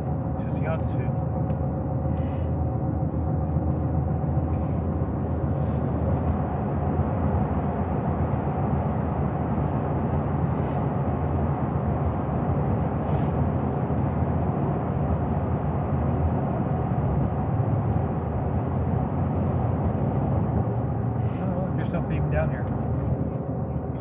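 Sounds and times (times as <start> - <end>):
vehicle road and engine rumble: 0.0 - 24.0.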